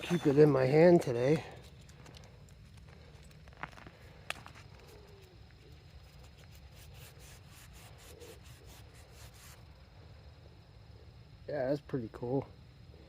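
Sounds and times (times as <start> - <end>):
marble rubbed in hand: 6.0 - 9.6.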